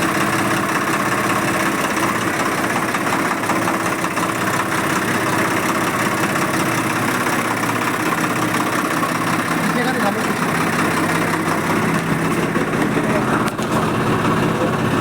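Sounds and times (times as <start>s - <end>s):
diesel tractor engine idling: 0.0s - 15.0s.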